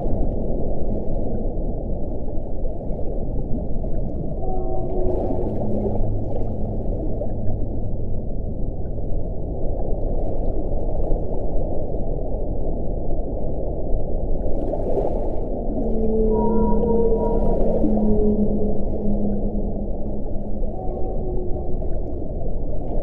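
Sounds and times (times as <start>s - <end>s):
wind blowing: 13.6s - 23.0s.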